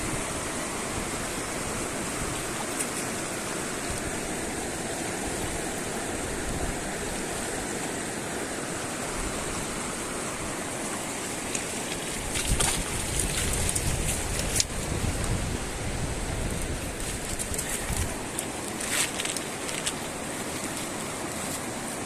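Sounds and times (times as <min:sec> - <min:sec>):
river water rushing: 0:00.0 - 0:22.0
sharp splashes and knocks: 0:11.4 - 0:14.8.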